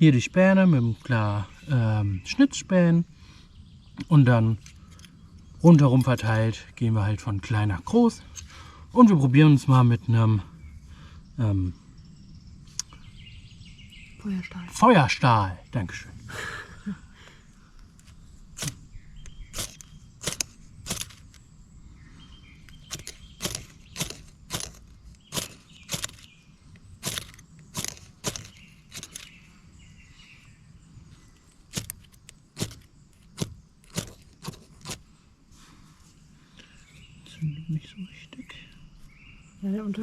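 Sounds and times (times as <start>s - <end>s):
ferro rod scraping: 18.0s - 21.4s, 22.8s - 26.3s, 27.0s - 29.3s, 31.7s - 35.1s.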